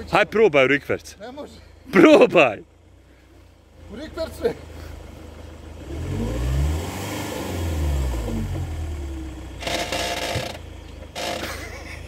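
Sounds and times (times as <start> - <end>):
car engine revving: 3.7 - 11.8.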